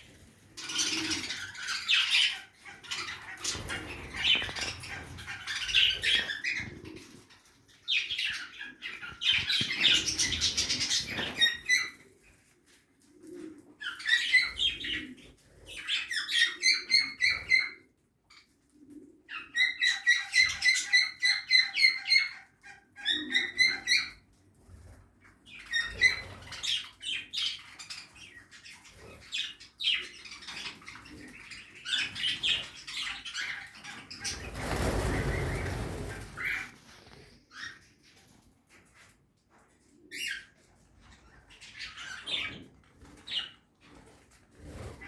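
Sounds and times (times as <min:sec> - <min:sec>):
budgerigars chirping: 0:00.6 - 0:06.8.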